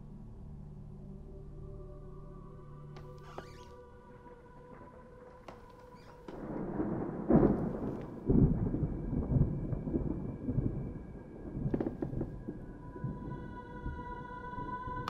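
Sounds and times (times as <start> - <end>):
deep rough rumbling: 5.5 - 13.2.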